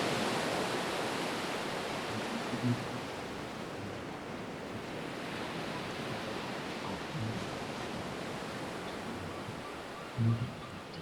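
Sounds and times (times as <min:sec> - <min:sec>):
sea rushing: 0:00.0 - 0:03.7
wind: 0:00.0 - 0:11.0.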